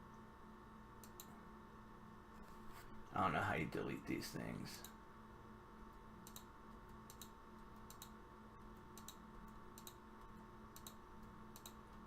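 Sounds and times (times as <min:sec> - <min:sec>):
low steady hum: 0:00.0 - 0:12.0
faint computer clicking: 0:01.0 - 0:01.4, 0:04.8 - 0:05.0, 0:05.9 - 0:12.0.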